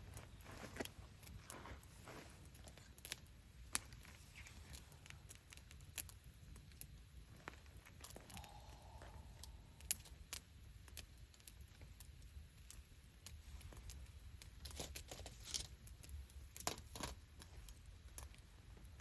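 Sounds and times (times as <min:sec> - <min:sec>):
low steady rumble: 0:00.0 - 0:11.3
campfire crackling: 0:00.0 - 0:19.0.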